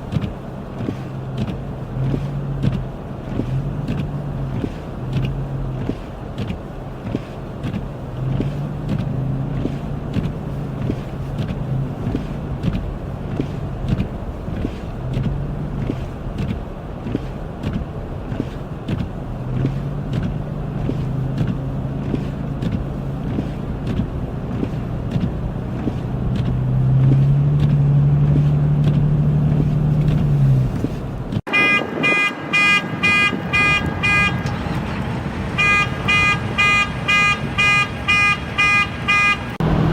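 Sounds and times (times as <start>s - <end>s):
vehicle engine and road noise: 0.0s - 39.9s
car alarm beeping: 31.5s - 39.6s.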